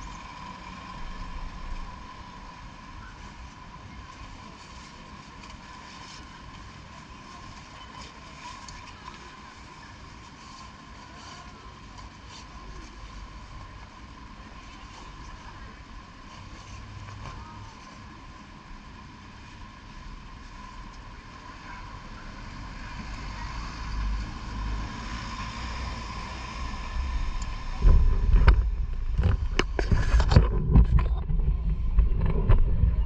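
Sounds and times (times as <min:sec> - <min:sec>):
wind on microphone: 0:25.4 - 0:33.0.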